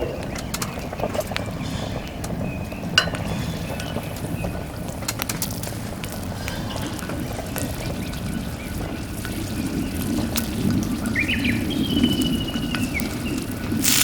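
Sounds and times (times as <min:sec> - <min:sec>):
meat sizzling on hot plate: 0:13.7 - 0:14.0.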